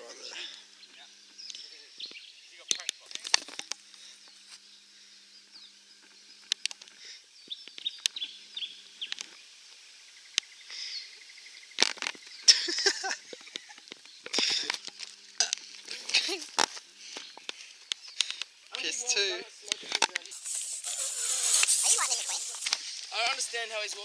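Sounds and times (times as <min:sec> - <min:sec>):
birds chirping: 0:00.0 - 0:24.0
footsteps crunching dry leaves: 0:20.3 - 0:24.0.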